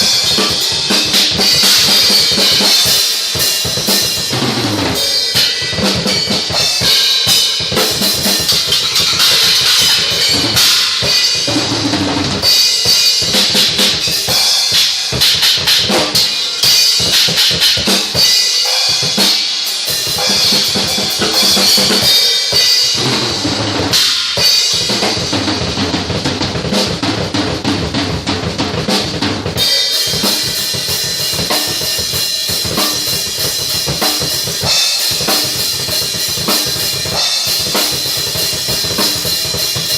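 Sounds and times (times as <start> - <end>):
crash and ride cymbals: 0.0 - 27.0, 28.8 - 39.9
bass drum: 3.7 - 14.4
snare drum: 5.8 - 18.2, 31.4 - 36.7.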